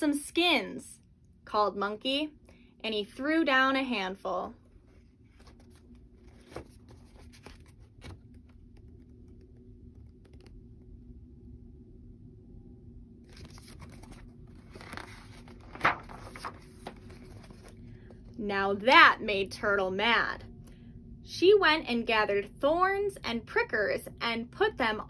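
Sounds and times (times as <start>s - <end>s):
rustling and crinkling handling: 4.7s - 10.5s, 13.3s - 18.4s.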